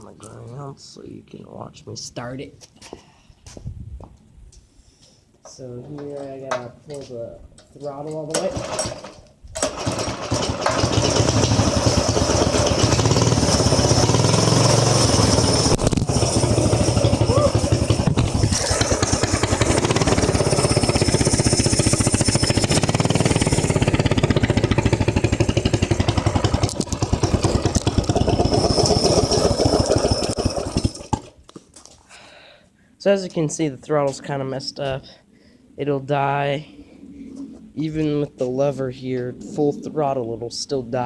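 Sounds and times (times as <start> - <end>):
small engine running: 8.5 - 31.3.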